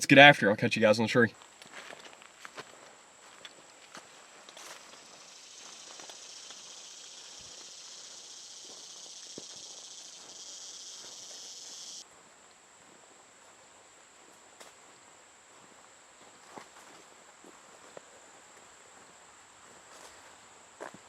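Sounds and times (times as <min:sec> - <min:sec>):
high insect trill: 0:04.5 - 0:12.0
insect buzzing drone: 0:04.6 - 0:12.0.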